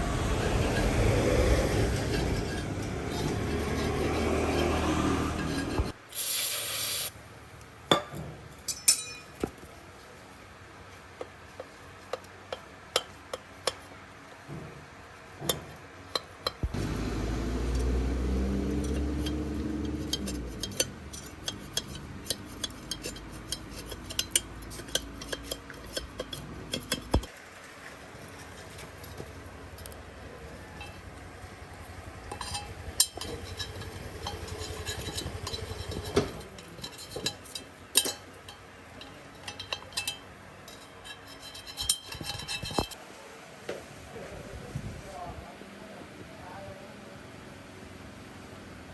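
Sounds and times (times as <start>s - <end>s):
short loud hiss: 6.0s - 7.2s
metallic clinks and taps: 7.9s - 9.5s, 32.3s - 43.0s.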